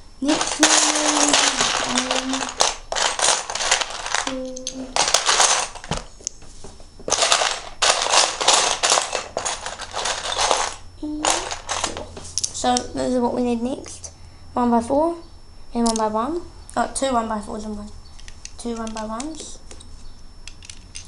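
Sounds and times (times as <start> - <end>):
plastic bricks clattering: 0.2 - 6.1, 7.1 - 12.1.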